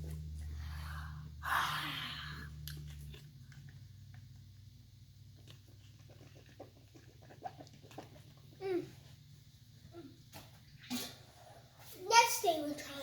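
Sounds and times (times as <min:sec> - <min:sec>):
low background hum: 0:00.0 - 0:13.0
child chewing candy: 0:02.6 - 0:08.8.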